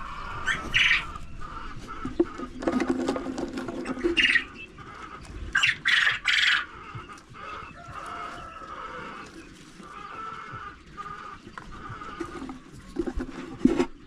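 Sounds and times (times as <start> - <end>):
chickens squawking: 0.0 - 14.0
low drawn-out chicken call: 4.0 - 12.6.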